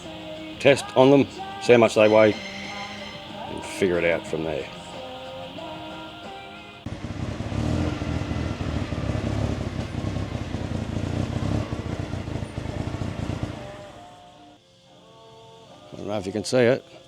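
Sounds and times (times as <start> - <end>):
engine rough low rumble: 6.8 - 14.2.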